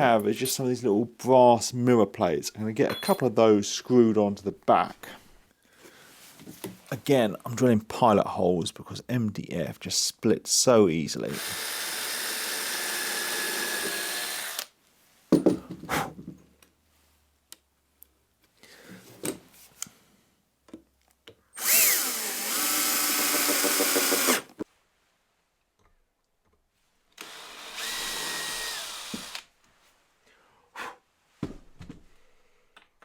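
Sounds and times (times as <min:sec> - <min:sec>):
knocks and handling sounds: 0:02.8 - 0:03.4, 0:05.8 - 0:06.9, 0:15.2 - 0:16.8, 0:18.4 - 0:20.0, 0:31.3 - 0:33.0
power drill drilling into wood: 0:11.3 - 0:14.7, 0:21.6 - 0:24.6, 0:27.2 - 0:29.5.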